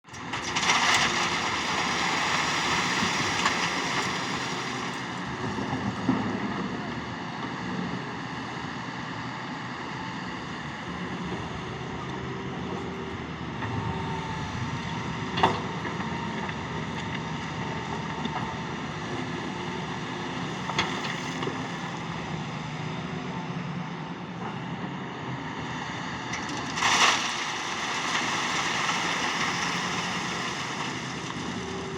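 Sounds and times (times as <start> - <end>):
excavator engine droning: 0.1 - 31.9.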